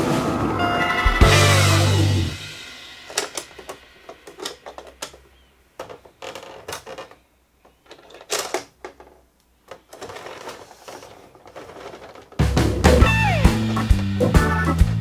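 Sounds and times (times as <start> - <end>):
plastic toy clicking and rattling: 3.1 - 12.5.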